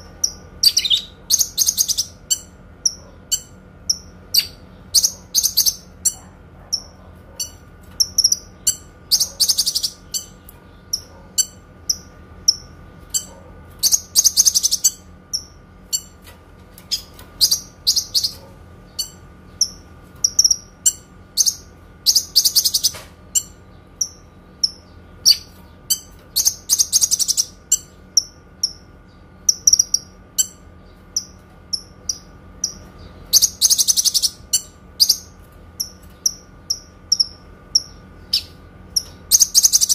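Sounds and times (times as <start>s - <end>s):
bird trill: 0.0s - 16.2s, 16.9s - 39.9s
songbird chirping: 0.1s - 16.1s.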